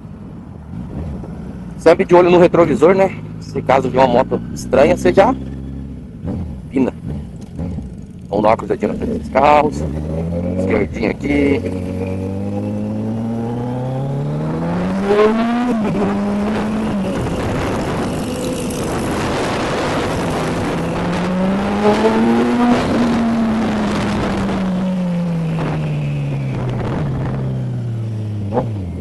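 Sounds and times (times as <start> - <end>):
motorcycle engine accelerating: 0.4 - 29.0
wind noise: 9.7 - 29.0.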